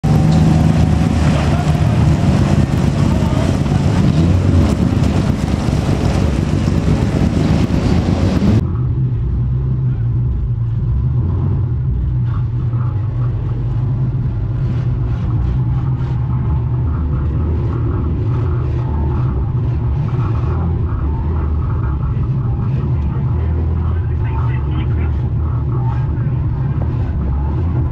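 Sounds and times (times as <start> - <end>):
car engine idling: 0.0 - 27.9
loud trackside noise: 0.0 - 27.9.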